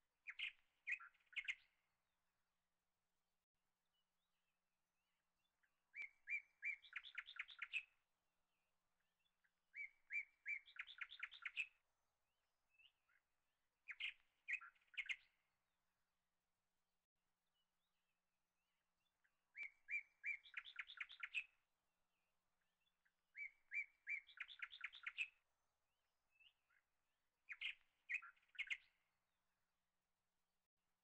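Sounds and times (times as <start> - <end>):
small bird chirping: 0.3 - 1.8, 5.9 - 7.9, 9.7 - 11.8, 13.9 - 15.4, 19.5 - 21.6, 23.3 - 25.4, 27.5 - 29.0.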